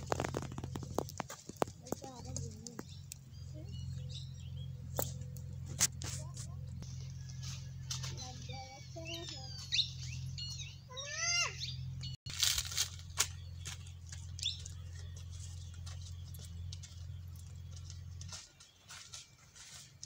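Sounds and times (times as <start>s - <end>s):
footsteps on dry leaves: 0.0s - 3.0s, 12.3s - 20.0s
birds chirping: 0.0s - 20.0s.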